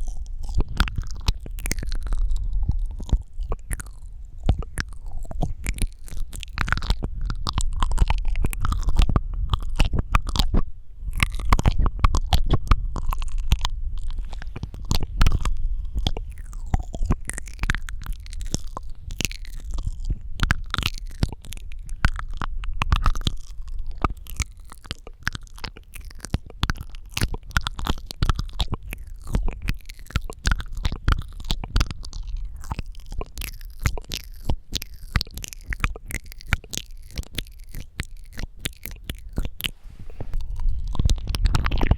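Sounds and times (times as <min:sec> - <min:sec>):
tongue clicks and lip smacks: 0:00.0 - 0:41.9
low rumble: 0:39.2 - 0:41.9.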